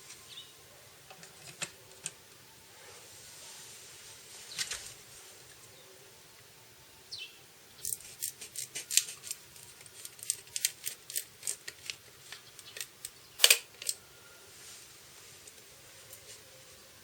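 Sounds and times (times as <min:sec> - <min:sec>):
clicks and scrapes of small tools: 0:07.8 - 0:14.0.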